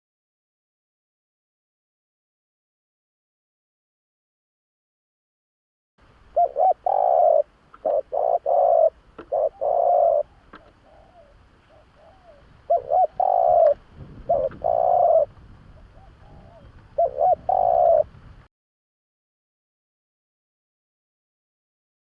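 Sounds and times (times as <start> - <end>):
dove cooing: 6.3 - 18.1.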